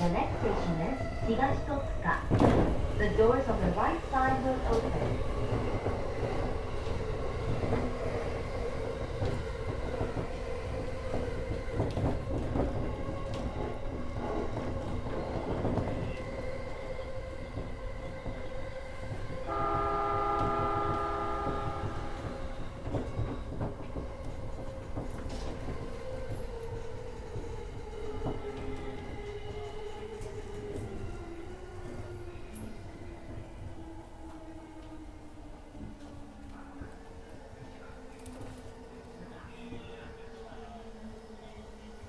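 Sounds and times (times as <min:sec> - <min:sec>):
train horn: 0:19.4 - 0:23.1.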